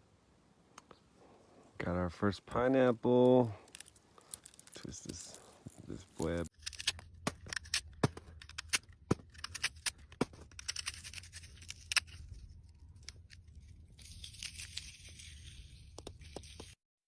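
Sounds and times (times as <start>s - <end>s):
sharp clicks and crackles of handling: 3.2s - 16.8s.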